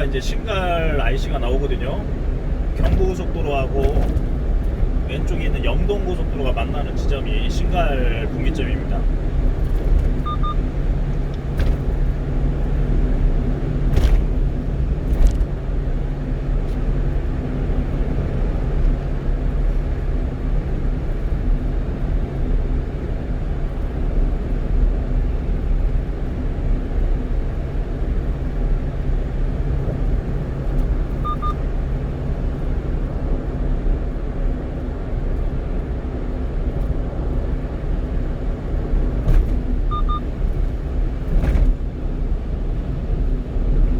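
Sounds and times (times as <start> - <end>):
tyre-on-road rumble: 0.0 - 20.7
truck engine drone: 0.0 - 21.7, 26.7 - 43.9
double electronic beep: 10.2 - 10.6, 31.2 - 31.6, 39.9 - 40.2.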